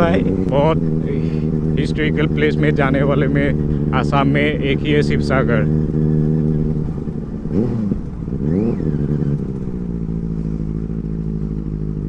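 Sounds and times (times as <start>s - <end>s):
engine throttle blips: 0.0s - 12.0s
motorcycle engine idling: 0.0s - 12.0s.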